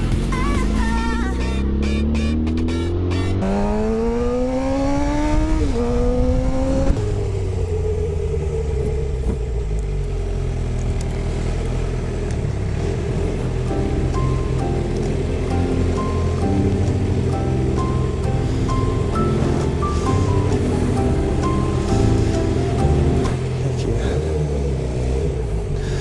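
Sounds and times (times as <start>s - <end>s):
motorcycle accelerating: 0.0s - 26.0s
wind noise: 4.0s - 9.6s.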